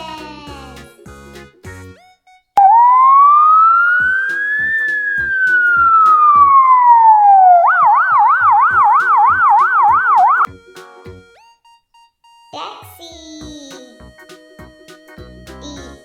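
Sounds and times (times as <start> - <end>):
children's music with steady beat: 0.0 - 3.3, 3.9 - 16.0
ambulance siren wailing and yelping: 2.0 - 10.5.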